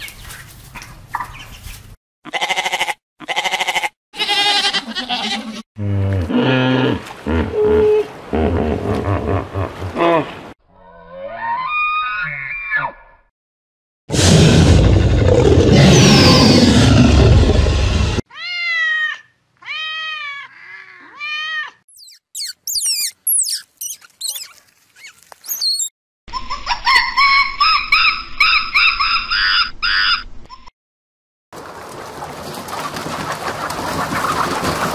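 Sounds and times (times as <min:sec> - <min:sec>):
dinosaur roar: 0:14.1 - 0:18.2
arched wavering calls: 0:21.9 - 0:25.9
ground squirrel chirps: 0:21.9 - 0:25.9
marmoset chattering calls: 0:21.9 - 0:25.9.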